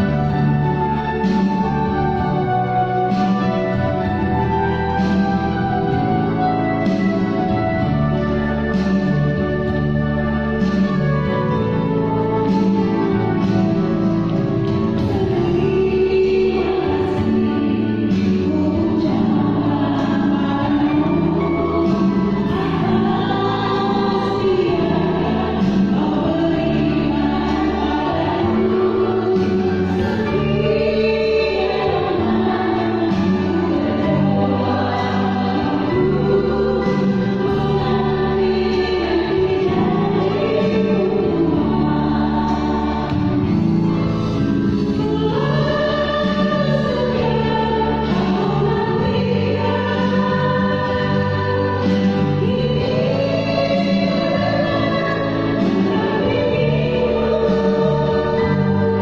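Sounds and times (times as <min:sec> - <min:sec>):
choir singing: 0:15.0 - 0:59.0.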